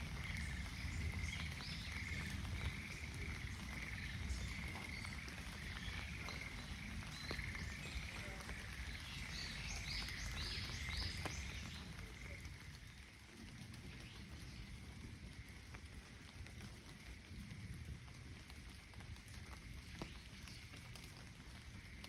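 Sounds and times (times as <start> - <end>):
raindrops ticking: 0.0 - 22.0
frogs calling: 0.1 - 12.5.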